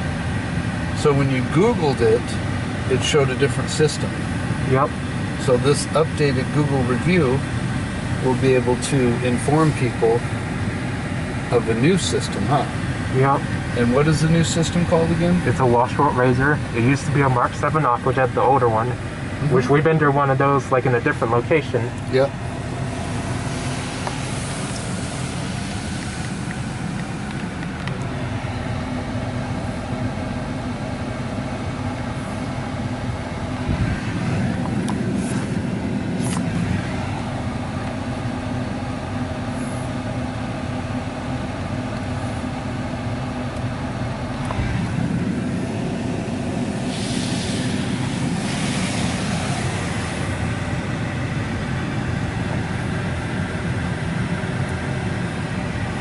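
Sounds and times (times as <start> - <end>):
car wash machine hum: 0.0 - 56.0
water spraying on car: 21.1 - 28.5, 44.3 - 52.4.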